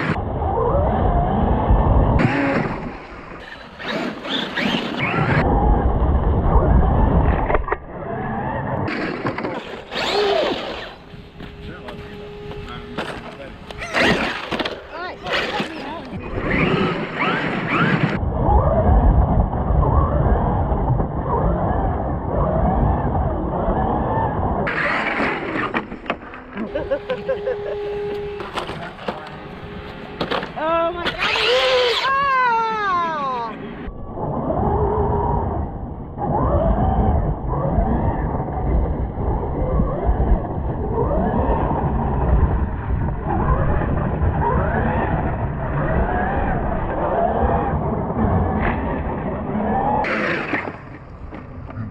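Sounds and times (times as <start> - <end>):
low rumbling noise: 0.0 - 51.9
heavy low rumble: 5.4 - 17.2
electric motor whining: 7.4 - 18.2, 21.3 - 32.5.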